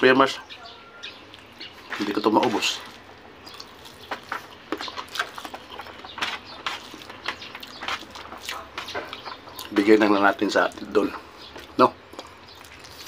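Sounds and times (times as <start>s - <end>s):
chewing and lip smacks: 1.2s - 2.1s, 2.7s - 9.8s, 10.6s - 13.0s.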